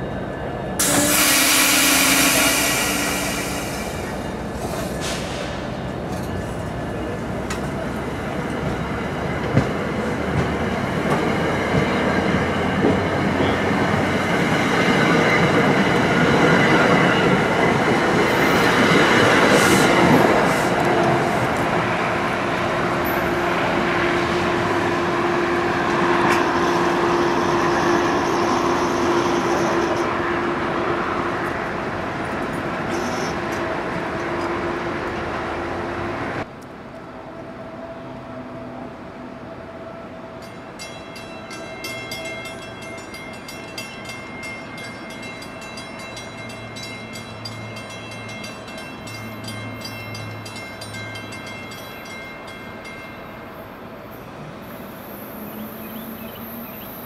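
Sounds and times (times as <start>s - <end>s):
train rumble pulling away: 0.2s - 36.5s.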